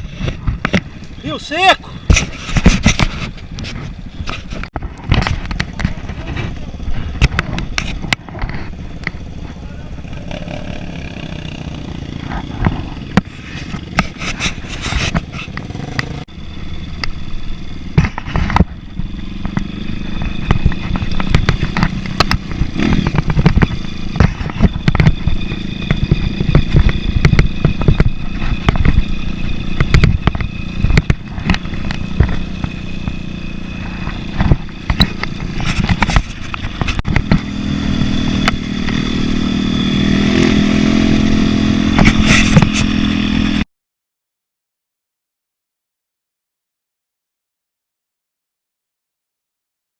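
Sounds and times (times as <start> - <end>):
motorcycle engine running: 0.0 - 43.6
clattering knocks over rough ground: 2.1 - 9.2, 17.9 - 29.2, 29.8 - 39.0.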